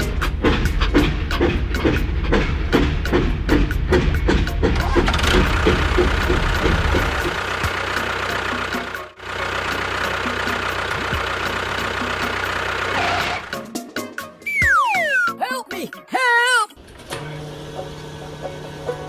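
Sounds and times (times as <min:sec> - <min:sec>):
engine running: 0:00.0 - 0:13.5.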